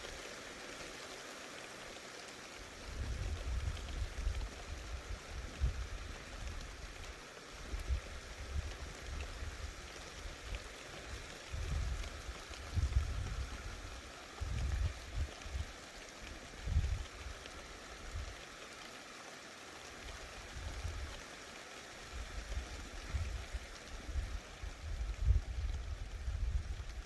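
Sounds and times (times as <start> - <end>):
rain hissing: 0.0 - 27.0.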